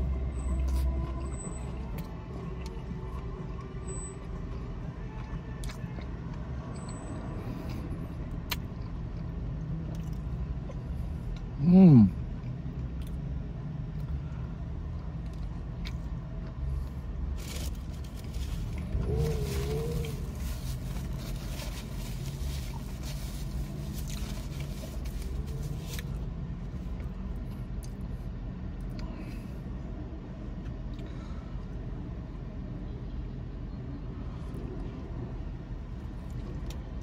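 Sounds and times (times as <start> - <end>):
low rumble inside a car: 0.0 - 37.0
chewing and wet mouth sounds: 0.5 - 11.6, 12.2 - 28.2, 35.8 - 37.0.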